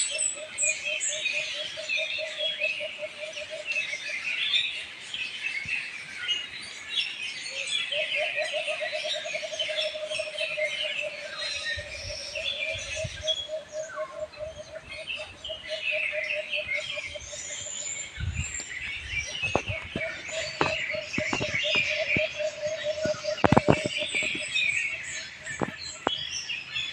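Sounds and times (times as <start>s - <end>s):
songbirds chirping: 0.0s - 26.9s
low fast-pulsing bird trill: 19.0s - 26.1s.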